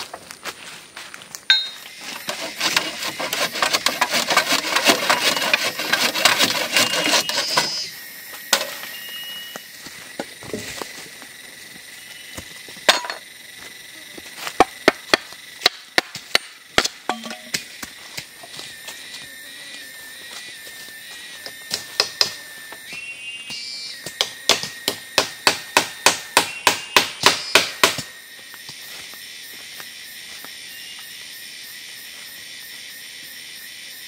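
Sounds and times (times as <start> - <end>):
sharp metallic clink: 1.5 - 1.9, 17.1 - 17.6.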